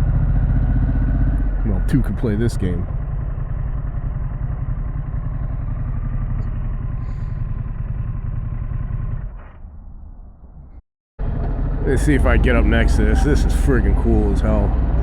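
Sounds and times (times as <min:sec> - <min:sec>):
motorcycle engine running: 0:00.0 - 0:09.4, 0:11.2 - 0:15.0.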